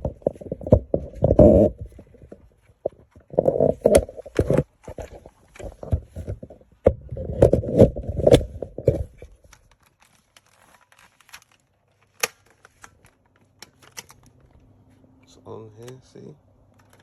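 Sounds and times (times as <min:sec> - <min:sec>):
handling rustling and clatter: 0:00.0 - 0:15.0, 0:16.7 - 0:17.0.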